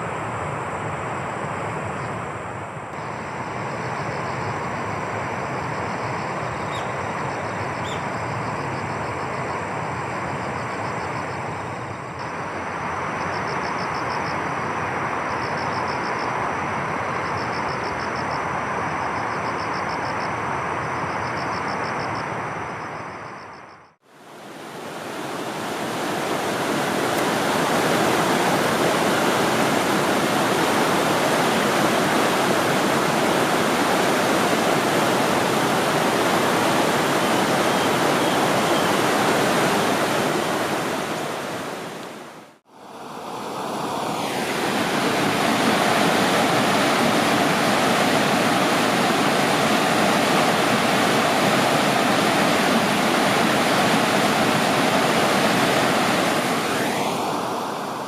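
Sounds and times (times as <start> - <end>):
rushing water: 24.0 - 58.0.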